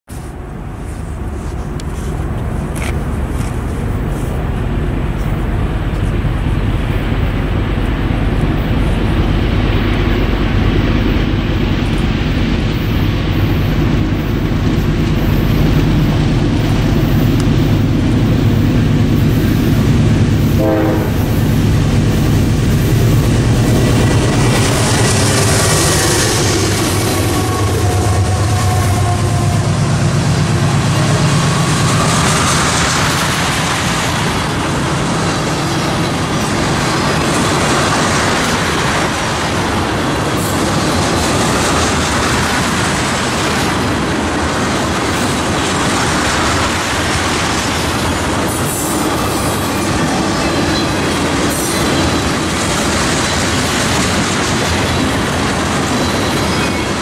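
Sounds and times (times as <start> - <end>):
diesel locomotive engines rumbling: 0.1 - 57.0
wheel and rail noise: 0.1 - 57.0
train horn: 20.4 - 21.5, 25.6 - 30.9.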